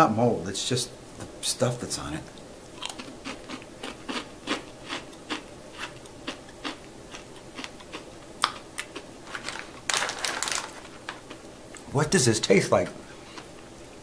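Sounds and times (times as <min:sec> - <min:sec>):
crunchy chewing of rice crackers: 0:02.7 - 0:11.5.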